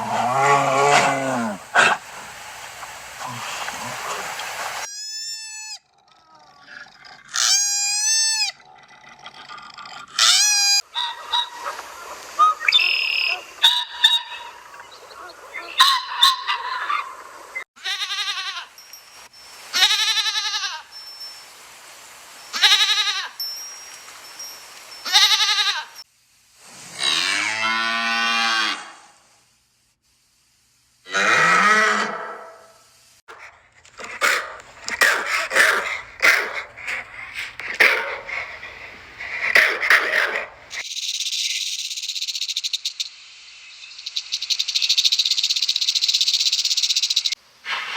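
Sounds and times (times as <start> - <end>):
short high-pitched animal calls: 4.8 - 6.4, 7.3 - 8.6, 10.2 - 11.5, 22.5 - 23.4.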